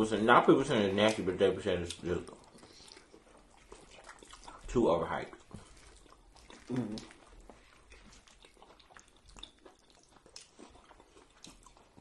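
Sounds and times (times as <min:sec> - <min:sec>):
chewing and lip smacking: 0:00.9 - 0:12.0
short vocal sound: 0:06.7 - 0:07.1.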